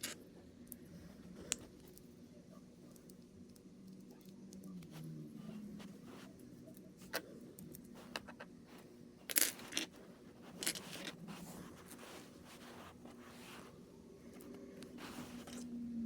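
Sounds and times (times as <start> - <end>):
plastic parts scraping: 9.3 - 13.7.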